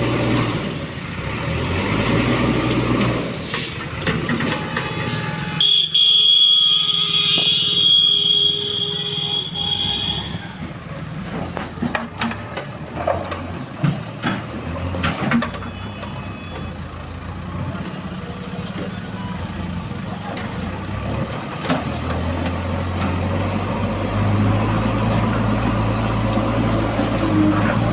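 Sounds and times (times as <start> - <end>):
diesel engines running: 0.0 - 27.9
knocks and clatters: 3.0 - 5.2, 10.6 - 16.8.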